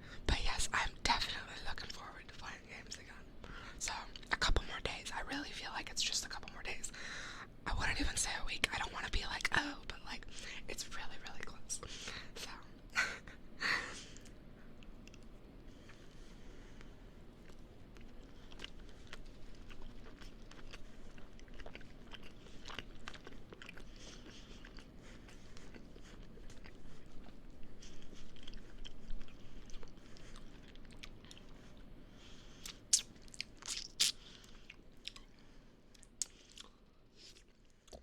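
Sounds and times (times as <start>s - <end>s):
chewing and biting food: 14.1s - 38.0s.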